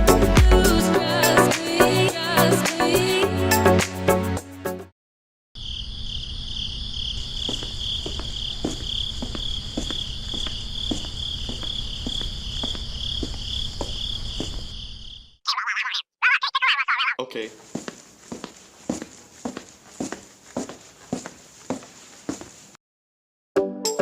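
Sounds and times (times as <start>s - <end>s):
music: 0.0s - 4.9s, 23.6s - 24.0s
crickets trilling: 5.6s - 15.4s.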